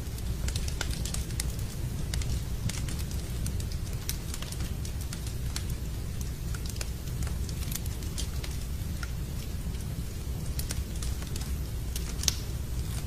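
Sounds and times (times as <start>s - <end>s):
rain hissing: 0.0s - 13.0s
wood fire crackling and popping: 0.0s - 13.0s.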